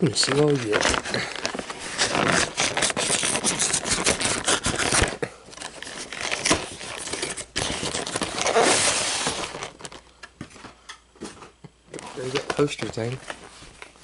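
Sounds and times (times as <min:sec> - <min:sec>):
cardboard packaging tearing: 0:00.0 - 0:10.0
packaging crinkling: 0:00.0 - 0:10.2
packaging rustling: 0:00.0 - 0:10.7, 0:11.3 - 0:14.0.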